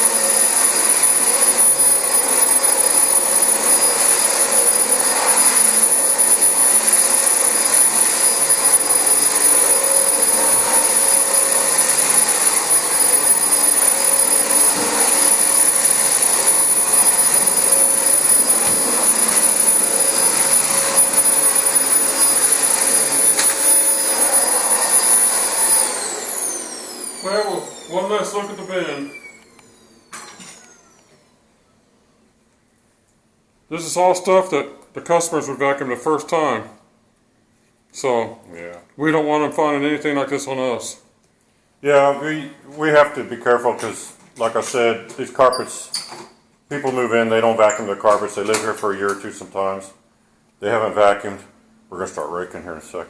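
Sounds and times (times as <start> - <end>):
vacuum cleaner motor whining: 0.0 - 31.4.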